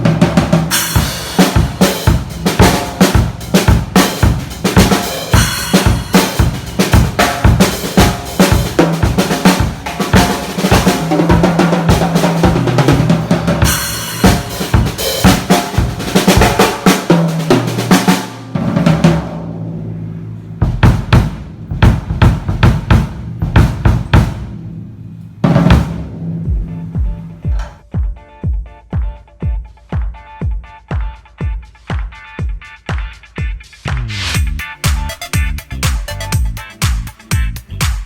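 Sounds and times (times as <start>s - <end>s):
drum kit groove: 0.0s - 19.9s, 20.5s - 38.0s
cymbals crashing: 0.6s - 27.6s.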